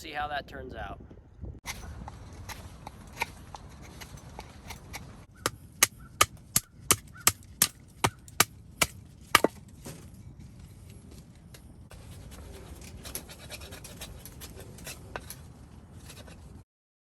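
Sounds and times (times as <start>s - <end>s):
blade chopping wood: 1.7s - 9.7s.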